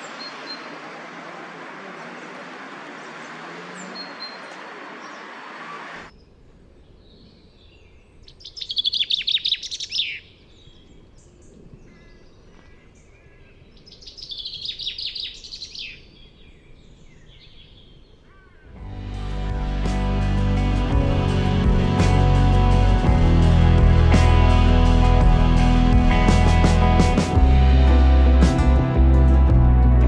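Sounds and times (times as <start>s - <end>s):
steady noise: 0.0s - 6.1s, 18.8s - 30.0s
songbird singing rapid high notes: 2.1s - 6.1s.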